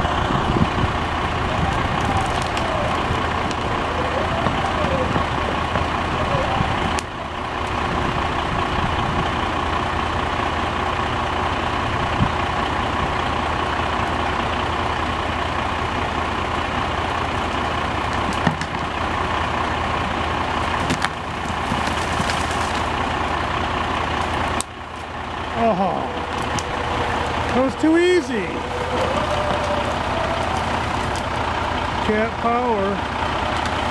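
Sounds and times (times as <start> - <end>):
heavy engine running under load: 0.0 - 33.9.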